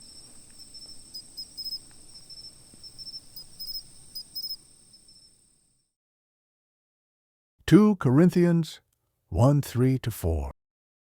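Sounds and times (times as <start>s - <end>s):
insect chirping in pulses: 0.0s - 5.9s
insect high trill: 0.0s - 5.9s.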